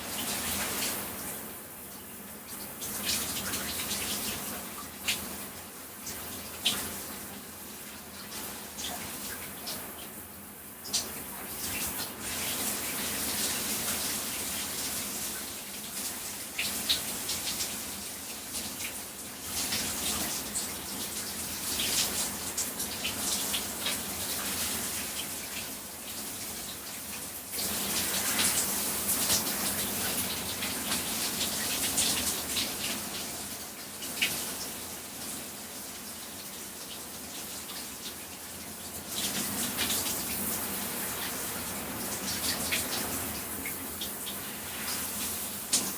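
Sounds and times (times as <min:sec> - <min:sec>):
shower spray on body: 0:00.0 - 0:10.2, 0:10.8 - 0:45.9.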